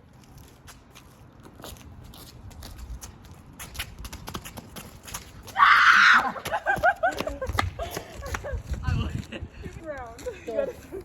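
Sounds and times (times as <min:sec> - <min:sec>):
quick footsteps running: 0:01.6 - 0:09.3.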